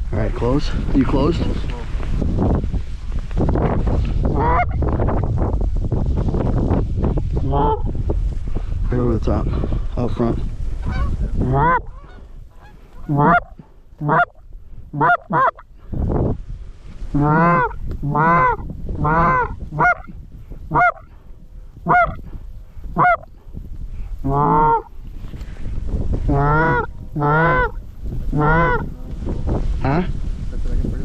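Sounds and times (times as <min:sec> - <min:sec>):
low wind rumble: 0:00.0 - 0:31.0
geese honking: 0:04.3 - 0:04.8, 0:10.8 - 0:15.6, 0:17.2 - 0:20.1, 0:20.7 - 0:21.0, 0:21.9 - 0:22.2, 0:23.0 - 0:23.3, 0:24.3 - 0:24.9, 0:26.3 - 0:28.9.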